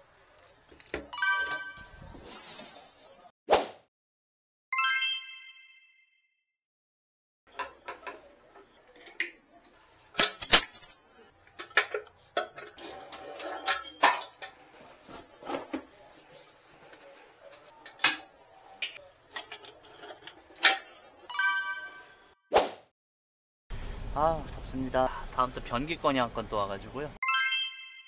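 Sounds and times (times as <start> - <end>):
metal tools clinking on ceramic: 9.1 - 14.6, 17.8 - 22.1.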